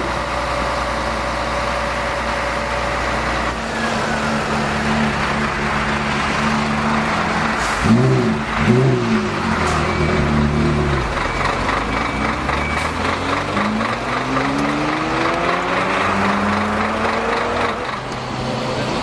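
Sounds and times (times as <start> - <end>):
car engine revving and pulling away: 3.0 - 19.0.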